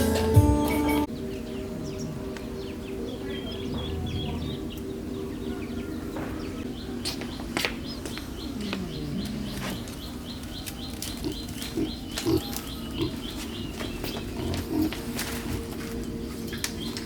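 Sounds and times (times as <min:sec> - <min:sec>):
bird chirping: 0:00.0 - 0:15.4
steady low hum: 0:01.2 - 0:06.7
short low sounds: 0:03.7 - 0:04.9.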